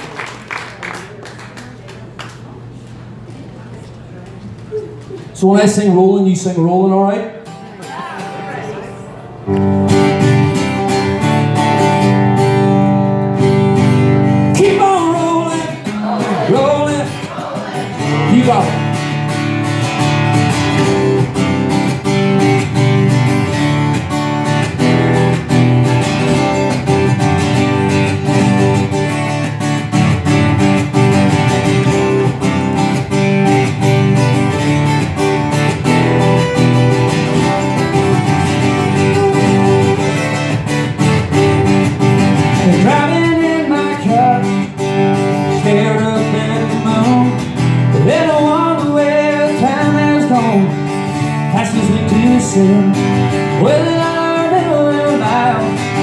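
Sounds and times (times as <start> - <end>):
guitar strumming: 7.3 - 56.0
person singing: 14.6 - 18.5, 38.6 - 40.3, 41.2 - 44.7.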